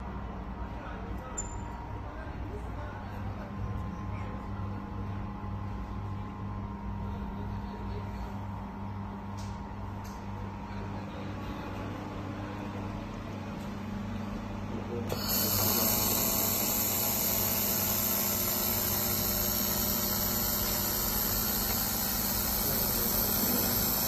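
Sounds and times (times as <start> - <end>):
laser welding machine humming: 14.8 - 24.0
loud steady hiss of welding gun: 15.1 - 24.0.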